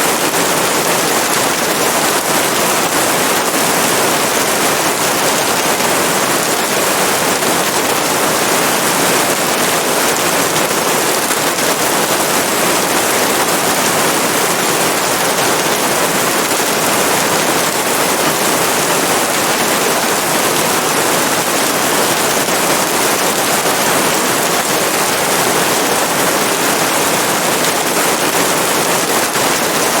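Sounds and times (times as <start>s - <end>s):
dense rain falling: 0.0s - 30.0s.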